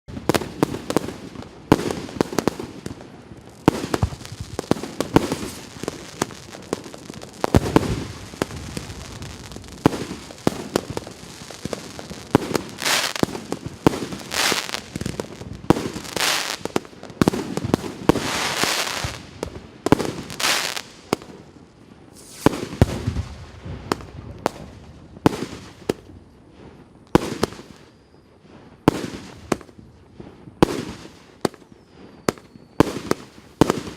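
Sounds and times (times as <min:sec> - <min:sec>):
firework shots and bangs: 0:00.1 - 0:21.4, 0:22.2 - 0:26.1, 0:32.2 - 0:33.9
firework rushing: 0:03.6 - 0:21.2.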